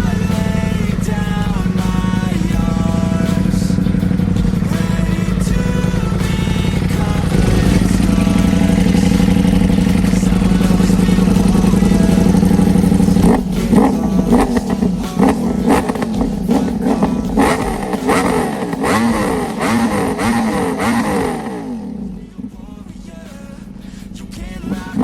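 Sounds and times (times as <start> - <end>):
engine throttle blips: 0.0 - 25.0
motorcycle engine high revs: 0.0 - 25.0.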